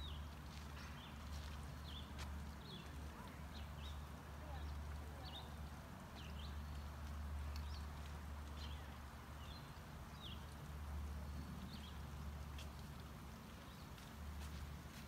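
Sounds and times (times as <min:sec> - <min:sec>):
birds chirping: 0:00.0 - 0:12.7.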